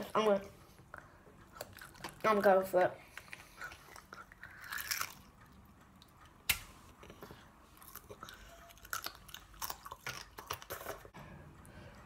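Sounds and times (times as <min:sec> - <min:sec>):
wet chewing: 0:00.9 - 0:06.4, 0:07.0 - 0:11.2.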